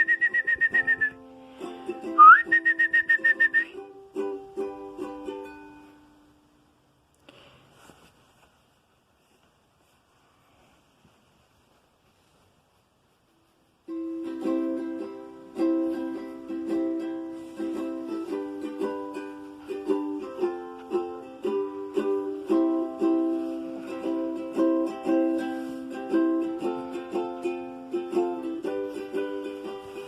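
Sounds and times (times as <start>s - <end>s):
acoustic guitar music: 0.0s - 6.5s, 13.9s - 30.0s.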